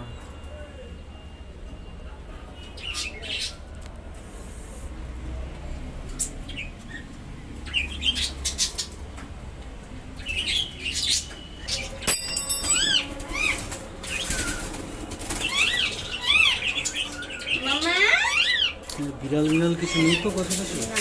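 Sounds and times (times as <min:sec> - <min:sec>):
bird chirping: 0:10.2 - 0:21.0
bird wings flapping in cage: 0:13.0 - 0:16.0.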